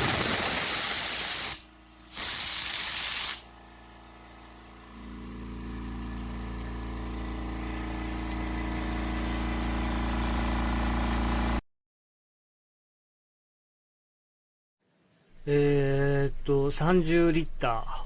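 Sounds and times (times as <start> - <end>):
air hissing: 0.0 - 3.6
air compressor motor humming: 0.0 - 11.6.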